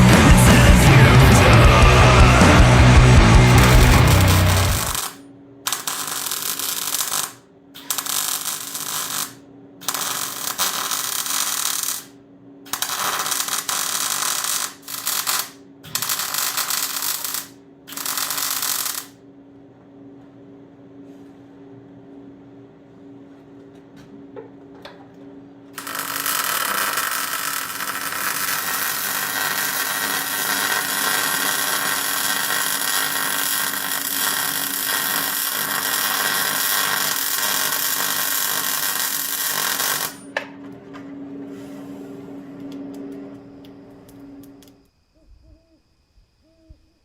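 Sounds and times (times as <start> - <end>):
steady low hum: 0.0 - 7.8
handheld power tool running: 0.0 - 12.1, 12.7 - 19.1, 25.8 - 40.2.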